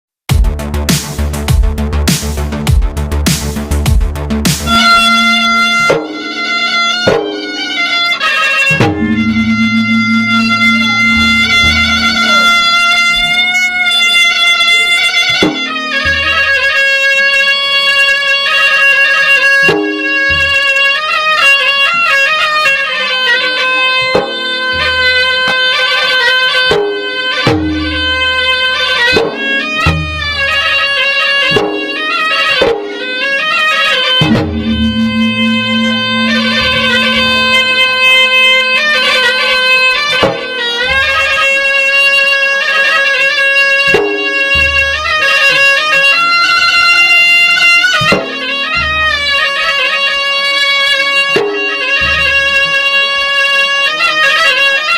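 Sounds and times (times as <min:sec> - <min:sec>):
traditional drum ensemble music: 0:00.3 - 0:54.9
reedy wind instrument melody: 0:03.6 - 0:54.9
sliding sustained melody notes: 0:04.7 - 0:14.2, 0:34.1 - 0:39.2.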